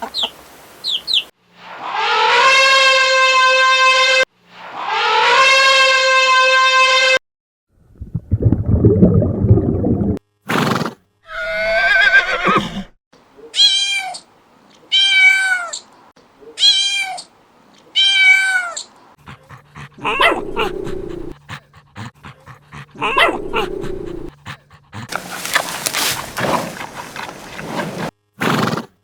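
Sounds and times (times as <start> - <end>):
animal calls: 11.3 - 14.2, 19.5 - 21.4, 22.0 - 24.3, 25.0 - 28.1.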